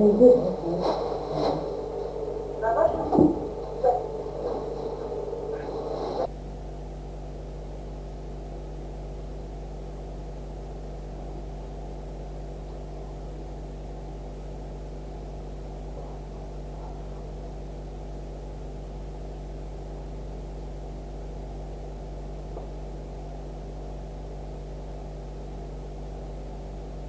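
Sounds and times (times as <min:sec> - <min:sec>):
loud uneven sound: 0:00.0 - 0:06.3
low hum with hiss: 0:00.0 - 0:27.0.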